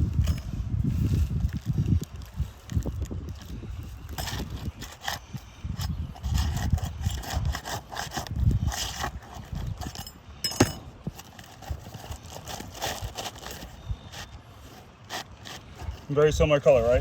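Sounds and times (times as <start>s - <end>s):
scraping on roof shingles: 4.2s - 10.0s, 10.8s - 16.2s.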